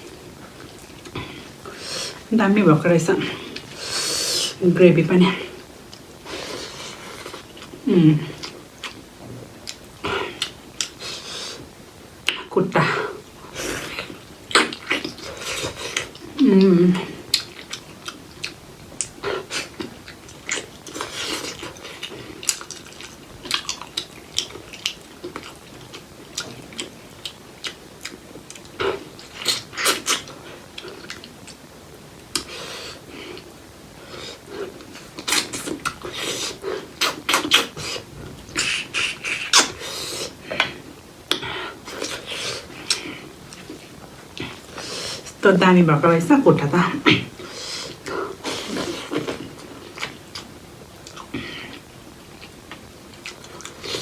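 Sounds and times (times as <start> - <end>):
wet chewing and smacking: 13.7 - 16.4, 17.2 - 31.6, 34.4 - 45.4, 47.3 - 54.0.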